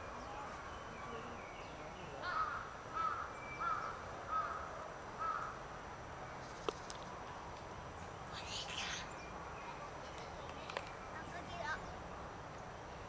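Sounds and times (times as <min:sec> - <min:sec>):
bird calling in arched notes: 0:00.1 - 0:05.6.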